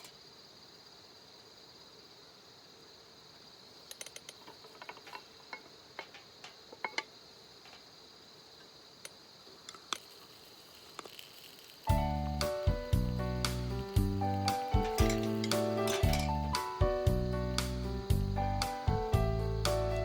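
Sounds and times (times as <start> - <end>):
faint high-pitched insect chorus: 0.0 - 20.0
small clicks and ticks: 3.9 - 7.9, 8.6 - 11.9.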